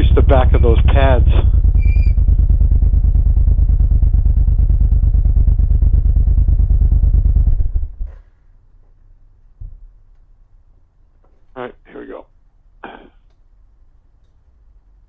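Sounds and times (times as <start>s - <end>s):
motorcycle engine pulsing: 0.0s - 8.1s.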